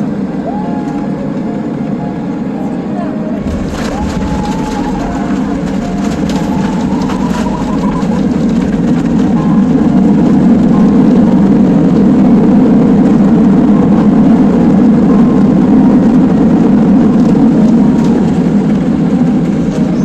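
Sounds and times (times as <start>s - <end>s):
jet engines rumbling in cabin: 0.0s - 20.0s
rushing air: 3.4s - 17.6s.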